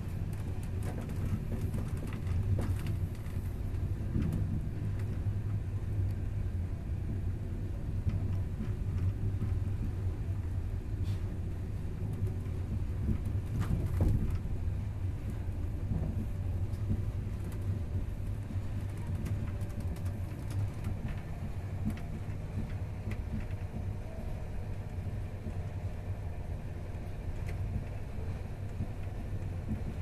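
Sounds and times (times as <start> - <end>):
train rumble inside carriage: 0.0 - 30.0
faint clicks and knocks: 0.3 - 6.2, 15.2 - 24.0, 26.9 - 30.0.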